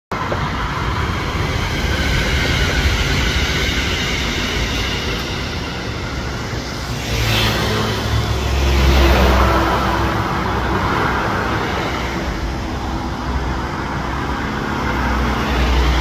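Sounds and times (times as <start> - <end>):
electric train rumbling: 0.1 - 16.0
road traffic passing: 0.2 - 16.0.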